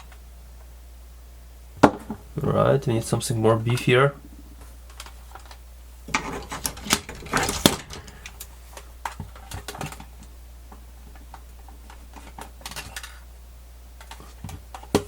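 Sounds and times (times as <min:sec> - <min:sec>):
plastic case clatter: 0:06.1 - 0:08.4.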